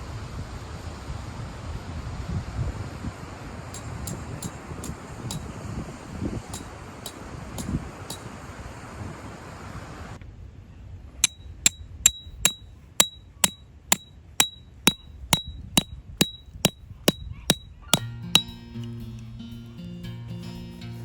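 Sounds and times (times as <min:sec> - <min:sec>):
hammer striking metal tent peg: 0:03.8 - 0:05.5, 0:11.2 - 0:18.6.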